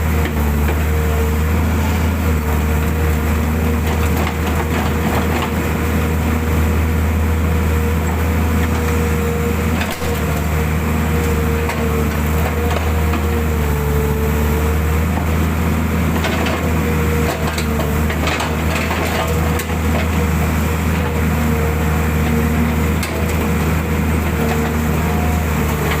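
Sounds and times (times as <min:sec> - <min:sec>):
diesel engine running: 0:00.0 - 0:26.0
hydraulic whine: 0:01.3 - 0:03.3.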